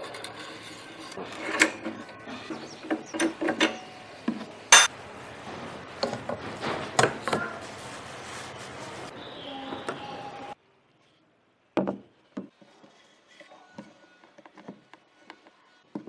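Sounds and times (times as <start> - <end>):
tools and parts clattering: 4.7 - 4.9.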